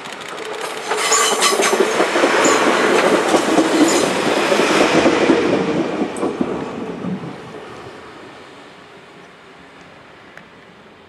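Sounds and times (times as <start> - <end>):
sharp clicks from rails: 0.0 - 7.2
diesel railcar moving away: 0.0 - 11.0.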